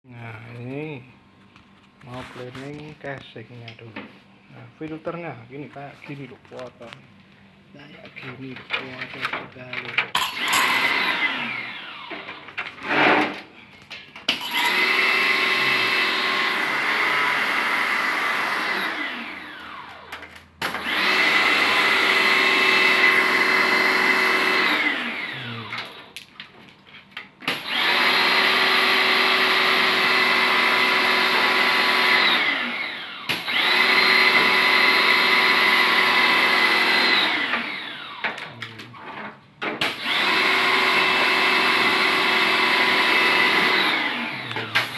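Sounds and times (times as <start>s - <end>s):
pressure washer motor whining: 10.2s - 13.0s, 14.3s - 20.2s, 20.8s - 26.2s, 27.5s - 38.5s, 39.8s - 44.9s.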